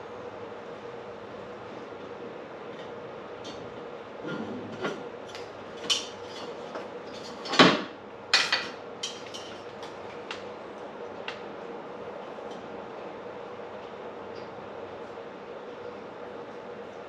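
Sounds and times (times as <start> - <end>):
metal tools clinking and clanking: 8.4 - 9.7.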